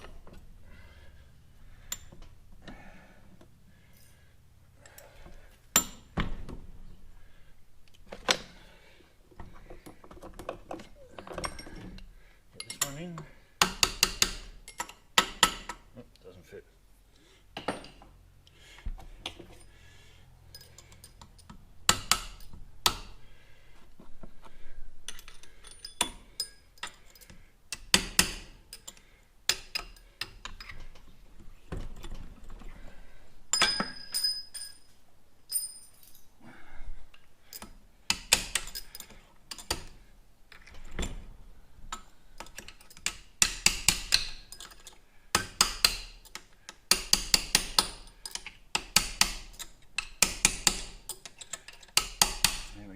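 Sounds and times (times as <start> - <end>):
metal tools clinking: 10.8 - 12.0, 12.6 - 13.3, 14.5 - 15.0, 20.4 - 21.6, 25.1 - 27.4, 33.5 - 36.4, 38.5 - 39.8, 44.3 - 45.0, 51.1 - 52.0.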